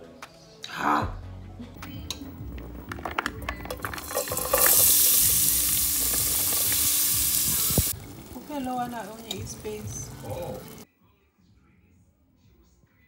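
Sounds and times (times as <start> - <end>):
vegetables sizzling in oil: 2.6 - 10.8.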